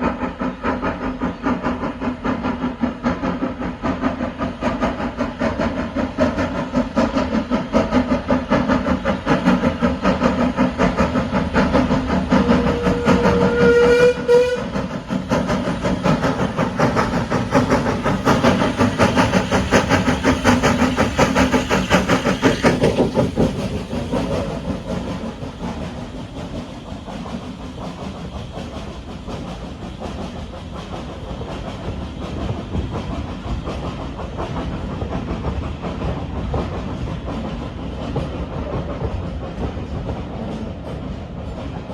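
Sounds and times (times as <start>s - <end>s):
train wheels clattering on rails: 0.0s - 41.9s
steam whistle blast: 12.4s - 14.8s.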